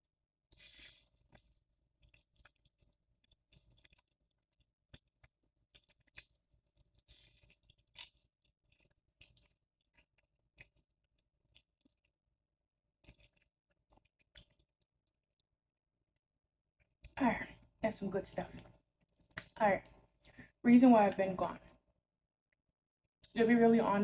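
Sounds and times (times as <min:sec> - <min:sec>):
person chewing noodles: 0:00.5 - 0:12.0, 0:13.0 - 0:14.7
hissing intakes of breath: 0:00.6 - 0:01.0.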